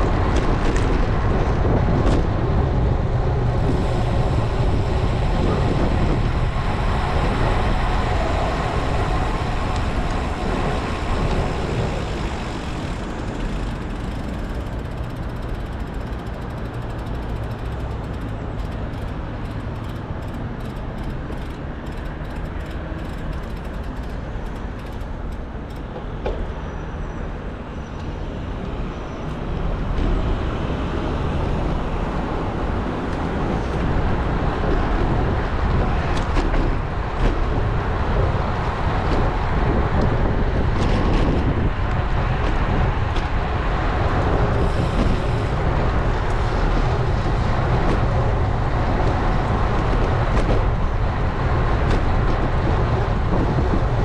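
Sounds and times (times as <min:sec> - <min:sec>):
wind on microphone: 0:00.0 - 0:17.8, 0:28.5 - 0:54.0
road noise: 0:00.0 - 0:54.0
fast light ticking: 0:13.6 - 0:25.9.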